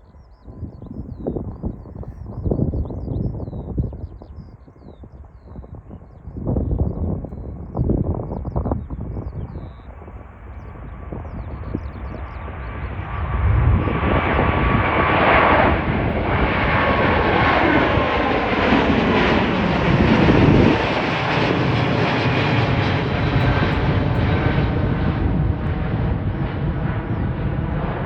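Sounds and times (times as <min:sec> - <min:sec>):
jet airliner taking off: 0:08.9 - 0:28.0.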